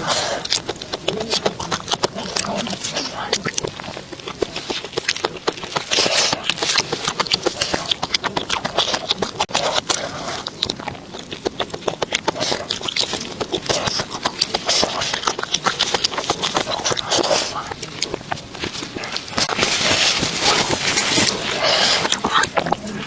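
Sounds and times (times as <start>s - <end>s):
person chewing crunchy food: 0.0s - 23.0s.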